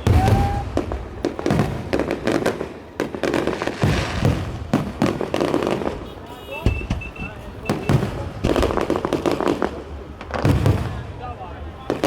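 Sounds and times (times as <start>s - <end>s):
firework whistle: 0.0s - 1.0s, 6.3s - 8.8s
fireworks bangs and booms: 0.0s - 12.0s.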